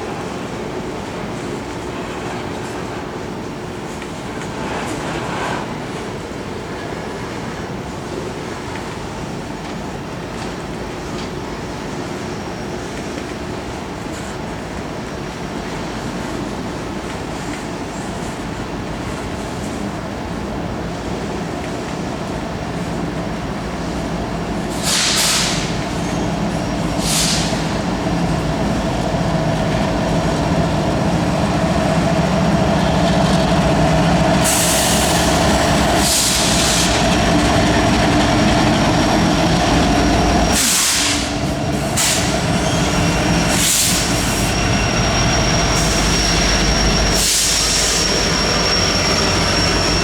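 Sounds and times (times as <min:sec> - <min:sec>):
train wheels rolling on rails: 0:00.0 - 0:50.0
high wheel squeal: 0:29.8 - 0:50.0.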